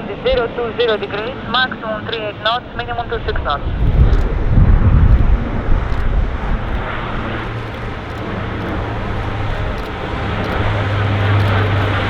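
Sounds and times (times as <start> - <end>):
jet engines roaring: 0.0 - 12.0
wind buffeting microphone: 2.7 - 12.0.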